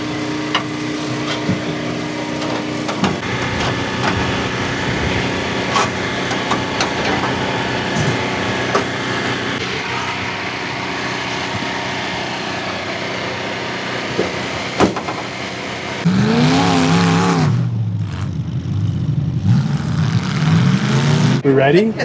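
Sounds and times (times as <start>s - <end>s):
engine revving: 0.0s - 21.8s
car engines running: 0.0s - 22.0s
sharp knocks: 14.1s - 15.4s.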